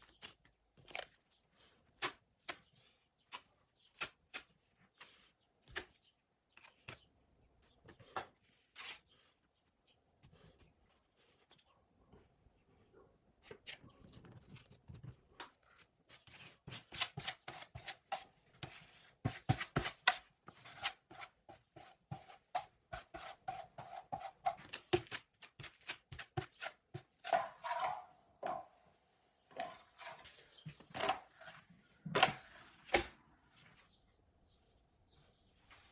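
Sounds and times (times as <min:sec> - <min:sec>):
tool scraping drywall: 0:16.2 - 0:28.6, 0:29.6 - 0:33.2.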